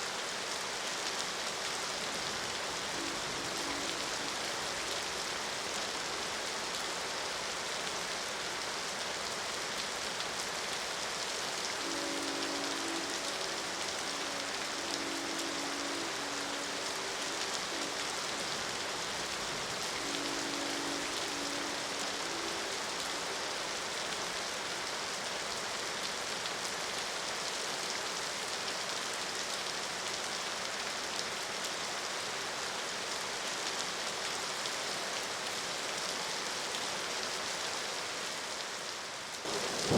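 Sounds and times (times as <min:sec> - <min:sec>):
heavy rain falling: 0:00.0 - 0:39.9
distant train horn blasts: 0:02.8 - 0:04.9, 0:11.6 - 0:23.9, 0:39.5 - 0:39.9.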